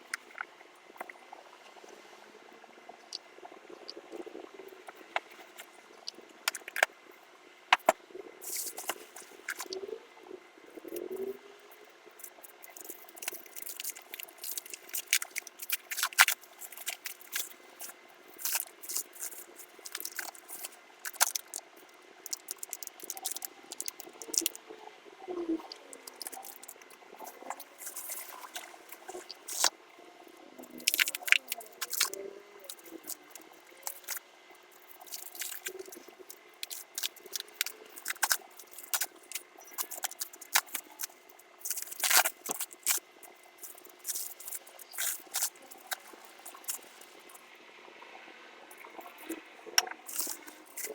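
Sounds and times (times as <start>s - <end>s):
packaging crinkling: 12.3s - 21.6s, 22.2s - 24.6s, 34.8s - 47.1s.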